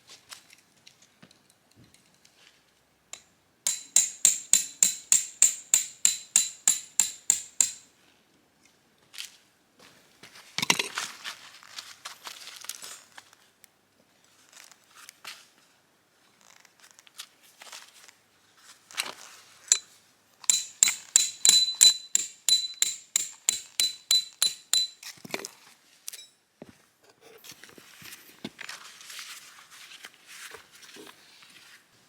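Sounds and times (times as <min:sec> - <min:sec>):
metal-on-metal taps: 0:03.1 - 0:07.8, 0:20.5 - 0:25.1.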